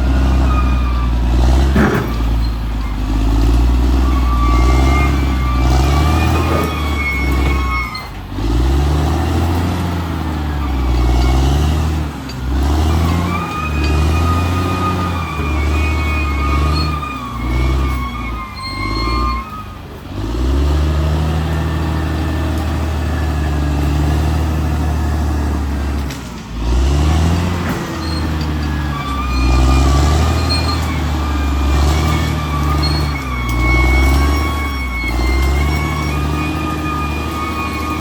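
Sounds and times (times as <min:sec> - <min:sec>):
bulldozer diesel engine under load: 0:00.0 - 0:38.0
high thin whistling squeals: 0:03.9 - 0:08.1, 0:13.0 - 0:19.8, 0:28.0 - 0:38.0.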